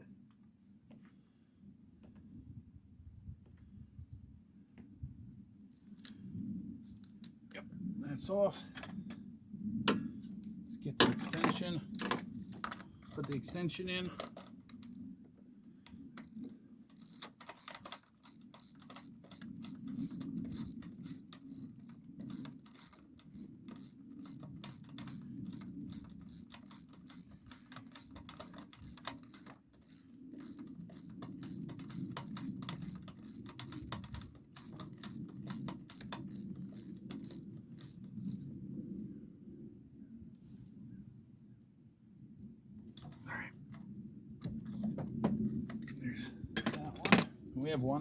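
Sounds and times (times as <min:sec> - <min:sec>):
hand ratchet clicking: 0:16.2 - 0:38.4.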